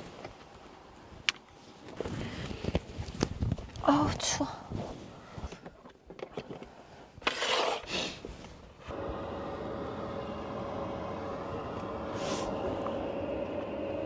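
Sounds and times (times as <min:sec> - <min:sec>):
parking heater humming: 0:08.8 - 0:14.0.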